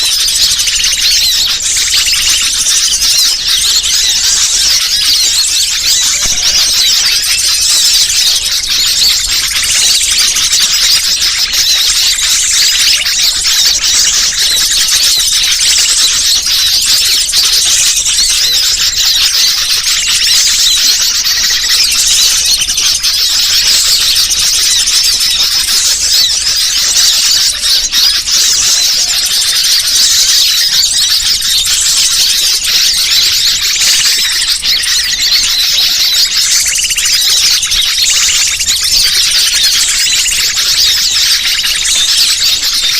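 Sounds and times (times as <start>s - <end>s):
small birds chirping and trilling: 0.0s - 42.9s.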